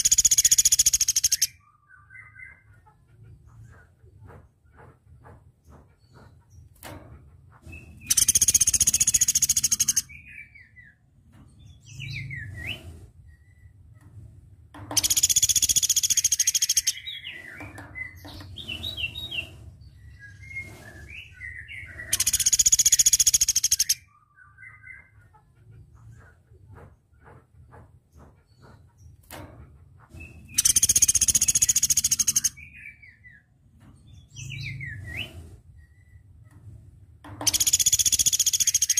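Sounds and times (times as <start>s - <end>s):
woodpecker trilling rattles: 0.0s - 1.6s, 7.7s - 10.2s, 14.8s - 19.5s, 21.8s - 24.1s, 30.5s - 33.0s, 37.3s - 38.9s.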